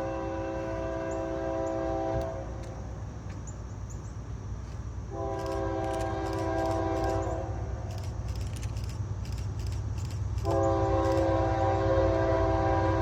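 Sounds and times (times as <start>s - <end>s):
locomotive air horn blasts: 0.0s - 2.8s, 5.1s - 7.8s, 10.4s - 13.0s
train rumbling: 0.0s - 13.0s.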